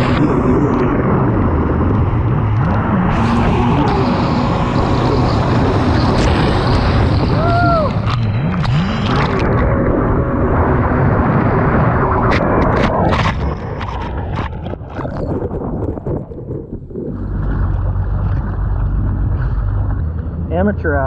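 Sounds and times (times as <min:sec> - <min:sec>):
jet ski engine running: 0:00.0 - 0:21.0
rush of wind and water: 0:00.0 - 0:21.0
brief whine: 0:02.8 - 0:10.0.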